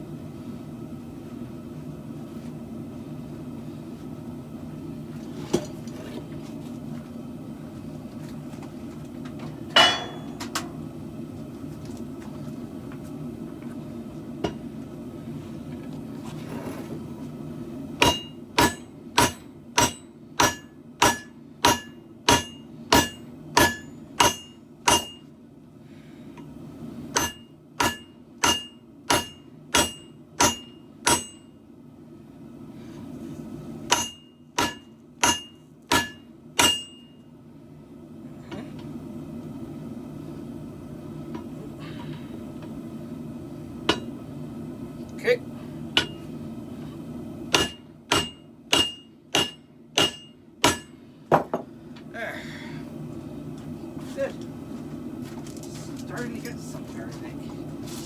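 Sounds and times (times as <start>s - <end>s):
steady low hum: 0.0s - 58.0s
hammer ringing on steel anvil: 9.8s - 10.4s, 18.0s - 25.2s, 27.2s - 31.5s, 33.9s - 37.2s, 47.6s - 51.0s.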